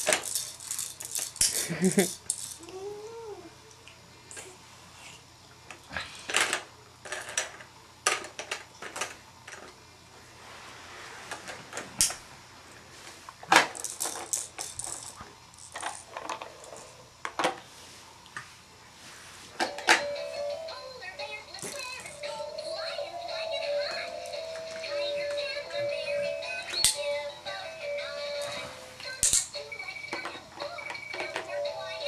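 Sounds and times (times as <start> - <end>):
plastic toys clattering: 0.0 - 2.7, 6.3 - 9.7, 13.4 - 17.6, 21.6 - 22.3, 29.1 - 31.6.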